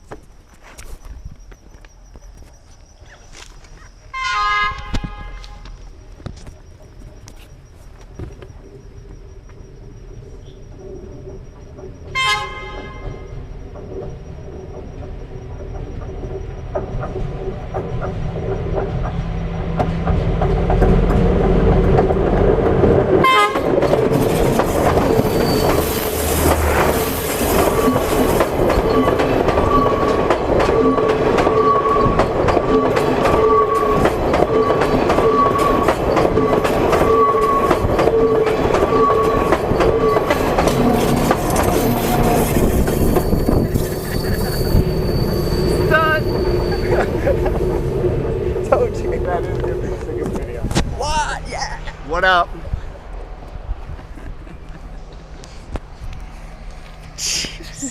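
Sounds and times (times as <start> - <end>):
train wheels clattering over rails: 11.3 - 50.8
high squeal: 24.6 - 30.2, 30.8 - 49.1.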